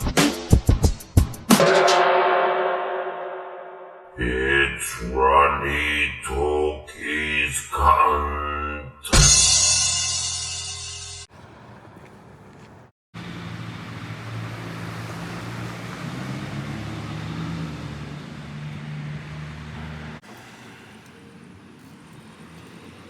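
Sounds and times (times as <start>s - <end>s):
motor vehicle engine humming: 11.3s - 23.0s.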